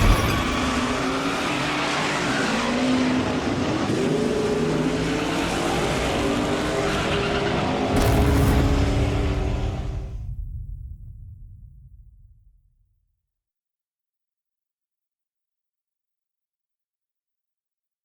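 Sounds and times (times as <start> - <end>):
car engine revving: 0.0 - 10.3.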